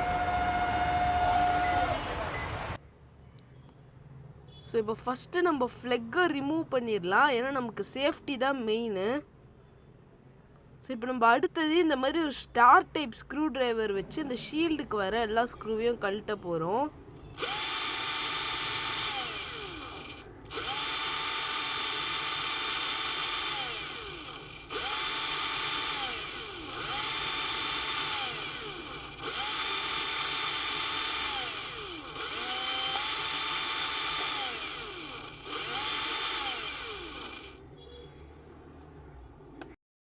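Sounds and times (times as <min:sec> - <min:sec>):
electric screwdriver motor whine: 0:00.0 - 0:02.2, 0:17.4 - 0:37.6.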